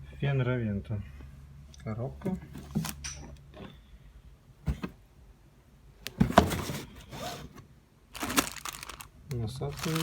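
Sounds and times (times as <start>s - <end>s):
cardboard box scraping and rustling: 6.2s - 7.6s.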